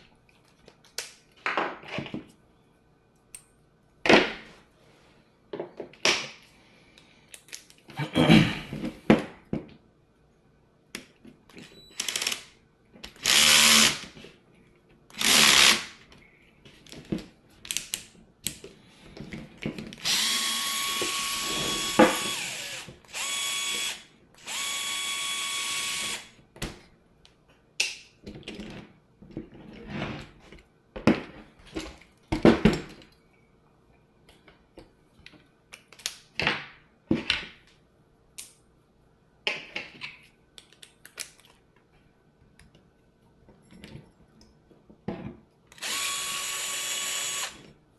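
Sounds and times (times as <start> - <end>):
clicks of small parts and tools: 7.0 - 7.9, 39.5 - 41.9
electric drill whining: 13.2 - 14.0, 15.2 - 15.8, 20.0 - 26.3, 45.8 - 47.6.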